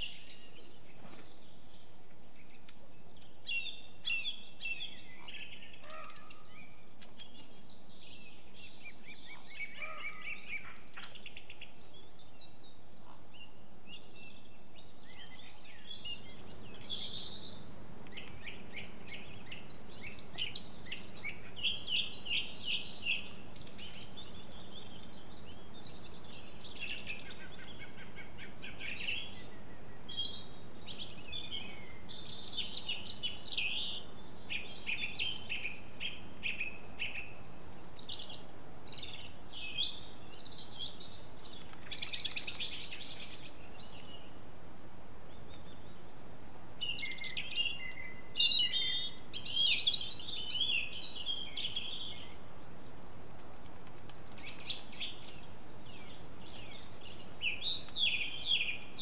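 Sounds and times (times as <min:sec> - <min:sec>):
faint background hiss: 0:00.0 - 0:59.0
songbirds chirping and trilling: 0:00.0 - 0:59.0.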